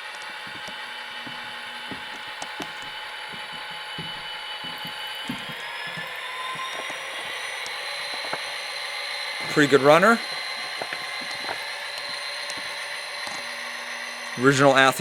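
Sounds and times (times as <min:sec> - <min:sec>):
model locomotive diesel engine sound: 0:00.0 - 0:15.0.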